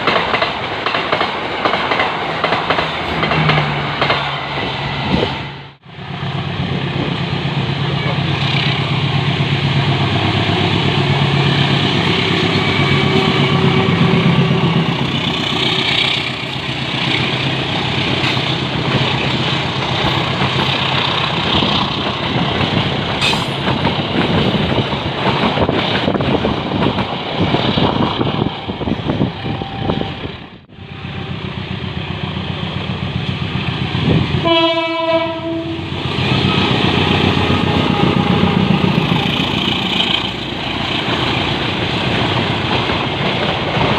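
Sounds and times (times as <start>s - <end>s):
train engine hum: 0.0s - 43.9s
train wheels clattering: 14.8s - 28.2s
train horn blast: 34.4s - 36.7s.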